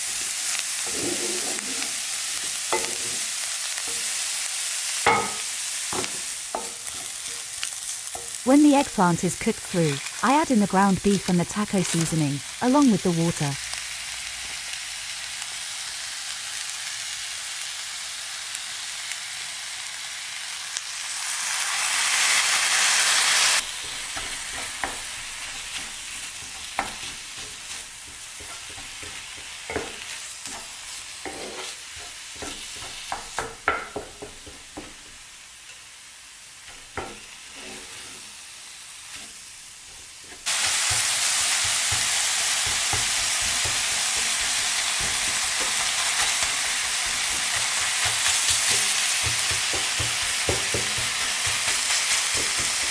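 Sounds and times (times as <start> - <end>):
meat sizzling in a pan: 0.0 - 52.9
utensil scraping a pan: 0.8 - 2.0, 23.6 - 33.9, 36.8 - 38.4.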